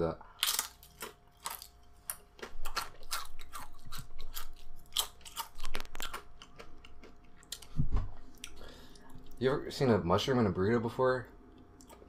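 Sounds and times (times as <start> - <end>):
crunching chips: 0.3 - 7.7.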